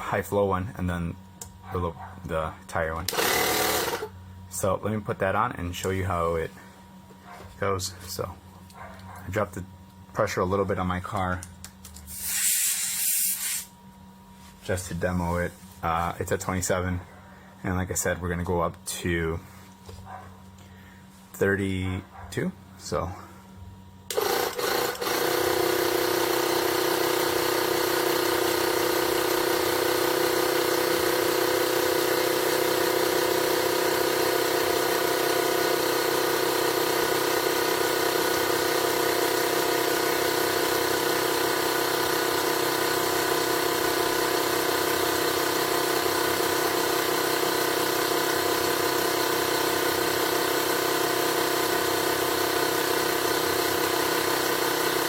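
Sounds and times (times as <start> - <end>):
electric air compressor running: 2.8 - 5.4, 11.9 - 13.8, 22.9 - 55.0.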